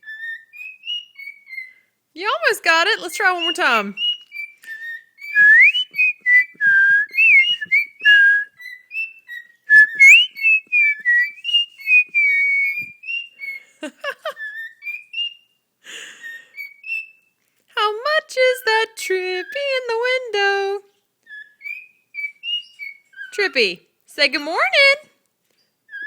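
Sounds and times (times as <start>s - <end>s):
cockatiel whistling a tune: 0.0s - 1.9s, 3.4s - 15.5s, 16.1s - 17.3s, 21.3s - 23.3s
harsh bird calls: 3.2s - 15.4s.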